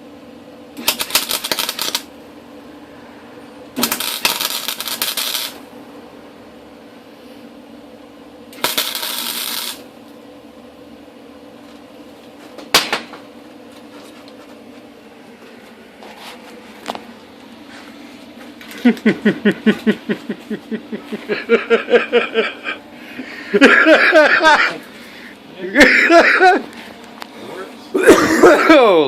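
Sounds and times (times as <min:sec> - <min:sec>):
welding arc crackling: 0:00.7 - 0:02.3, 0:03.7 - 0:05.7, 0:08.5 - 0:10.0.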